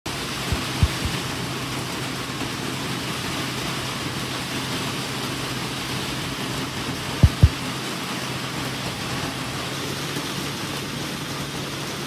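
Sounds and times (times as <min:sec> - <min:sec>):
rain hissing: 0:00.1 - 0:12.0
soft low thumps: 0:00.5 - 0:01.2, 0:07.2 - 0:07.6.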